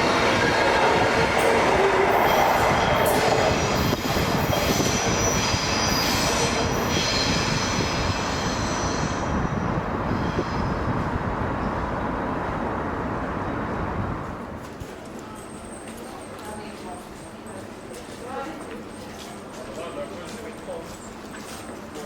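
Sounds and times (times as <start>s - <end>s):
rushing rail noise: 0.0s - 22.0s
train wheel squeal: 1.4s - 11.8s, 18.8s - 22.0s.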